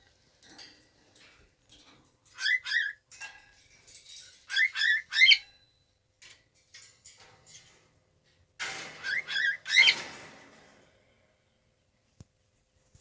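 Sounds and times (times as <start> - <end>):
cockatiel chirping: 2.4 - 3.0, 4.5 - 5.5
faint scratchy rustles: 12.1 - 13.0.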